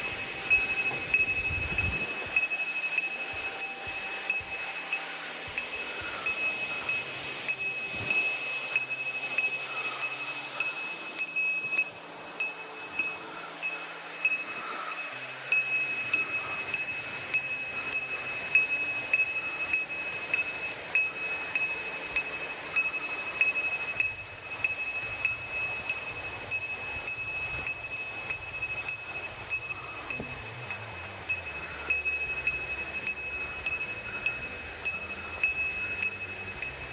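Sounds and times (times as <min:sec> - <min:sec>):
small metal bell jingling: 0:00.0 - 0:36.9.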